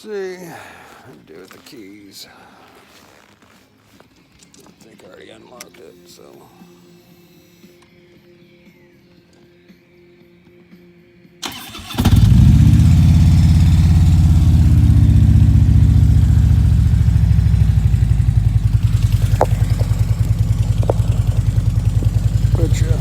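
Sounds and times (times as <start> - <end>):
motorcycle engine idling: 11.4 - 23.0
motorcycle starter cranking: 11.4 - 23.0.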